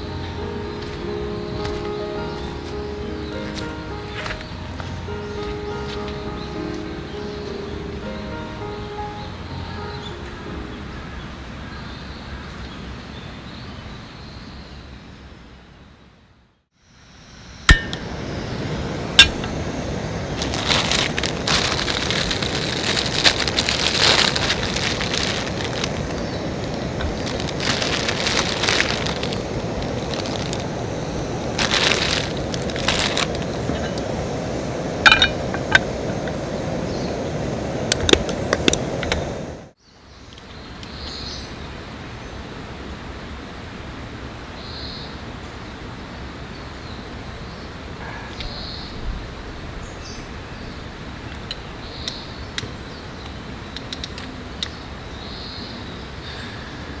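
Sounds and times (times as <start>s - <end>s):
steady wind: 0.0s - 57.0s
rustling crackle: 17.7s - 36.4s.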